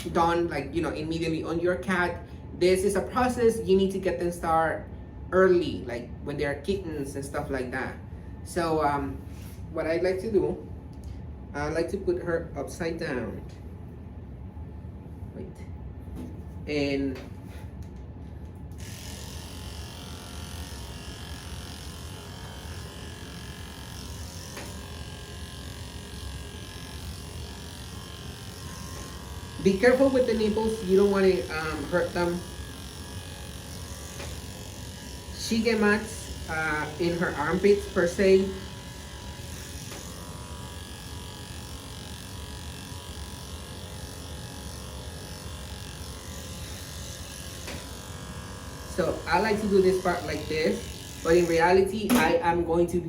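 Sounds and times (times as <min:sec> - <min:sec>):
electric pet clippers running: 0:00.0 - 0:04.5, 0:16.9 - 0:53.0.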